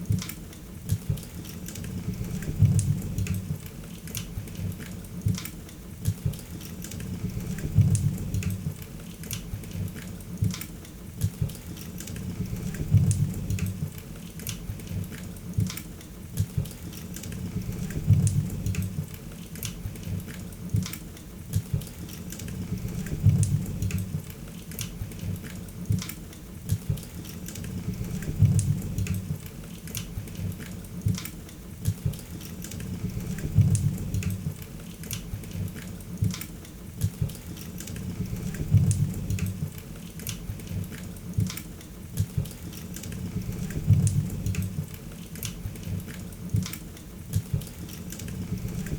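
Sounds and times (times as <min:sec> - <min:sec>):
low rumble of flames: 0:01.9 - 0:03.7, 0:07.0 - 0:08.8, 0:12.2 - 0:14.0, 0:17.3 - 0:19.2, 0:22.5 - 0:24.3, 0:27.6 - 0:29.5, 0:32.8 - 0:34.6, 0:38.0 - 0:39.8, 0:43.2 - 0:45.0.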